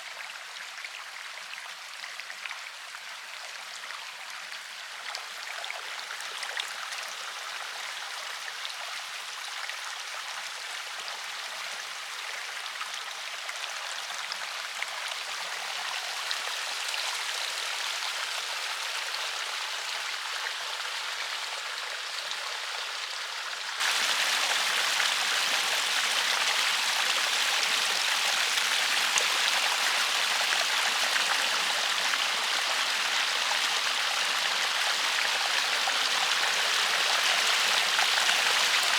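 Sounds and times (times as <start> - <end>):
river water rushing: 23.8 - 38.9.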